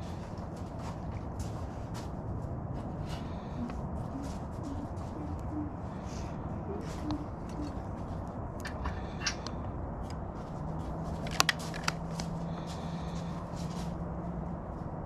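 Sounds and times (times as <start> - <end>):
steady hum: 0.0 - 15.0
low steady tone: 3.0 - 10.4
small clicks and rustles: 8.6 - 12.8.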